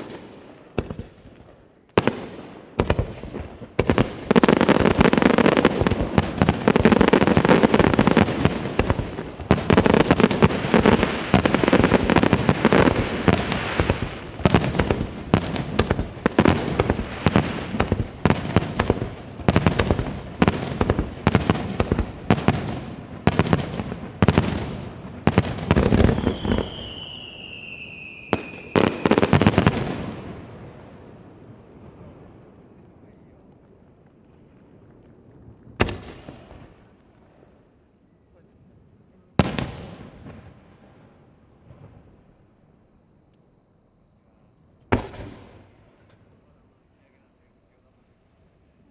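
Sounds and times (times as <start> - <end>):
fireworks bursts and crackle: 0.0 - 37.6, 39.3 - 42.2, 44.9 - 46.4
firework falling whistle: 26.1 - 29.2.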